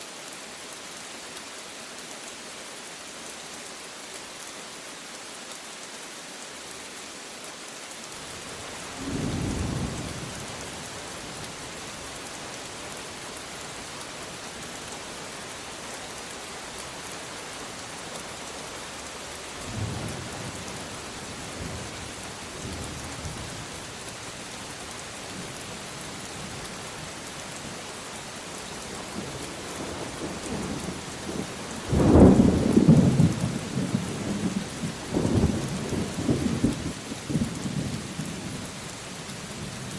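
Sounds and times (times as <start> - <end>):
heavy rain hissing: 0.0 - 39.9
thunder rumbling: 8.9 - 10.6, 30.0 - 38.6.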